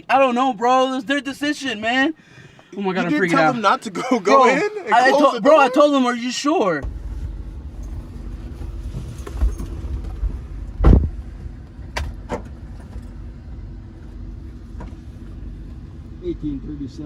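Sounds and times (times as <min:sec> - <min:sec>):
car engine idling: 0:00.0 - 0:17.0
heavy thump: 0:06.8 - 0:12.6.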